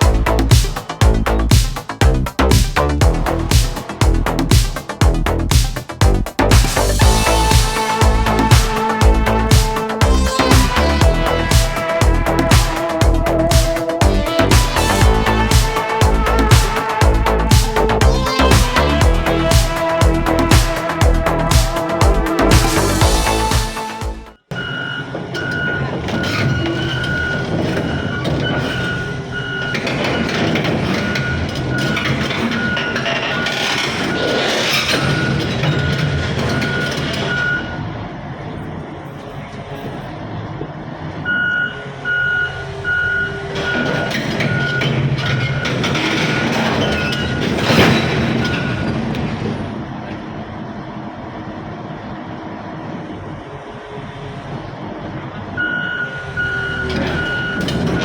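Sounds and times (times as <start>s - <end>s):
diesel engine running: 0.0s - 24.4s
excavator diesel engine running: 0.0s - 58.0s
loud noisy burst: 2.2s - 24.4s
backup alarm beeping: 7.0s - 30.3s, 35.0s - 37.8s, 41.2s - 45.8s, 55.6s - 58.0s
excavator warning alarm beeping: 24.5s - 38.0s, 41.2s - 49.1s, 55.6s - 58.0s.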